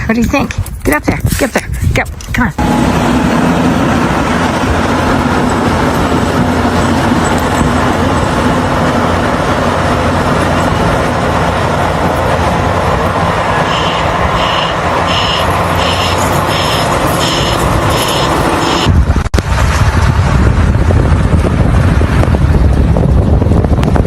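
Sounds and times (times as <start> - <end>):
vehicle engine humming: 0.0 - 24.0
high repeating beep: 13.6 - 18.9.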